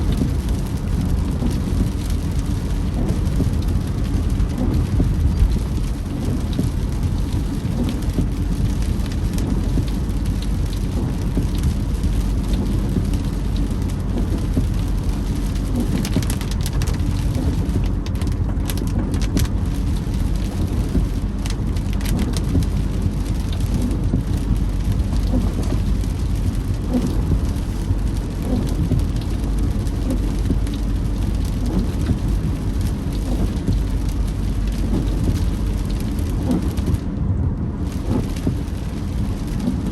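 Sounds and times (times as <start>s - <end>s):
rain on a car: 0.0s - 39.9s
road and engine rumble: 0.0s - 39.9s.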